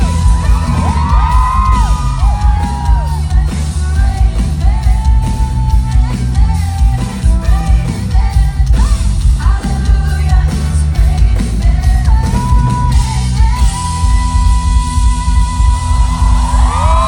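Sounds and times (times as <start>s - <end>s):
audience yelling: 0.0s - 3.4s, 16.0s - 17.0s
bass-driven pop beat: 0.0s - 17.0s
person singing: 0.0s - 17.0s.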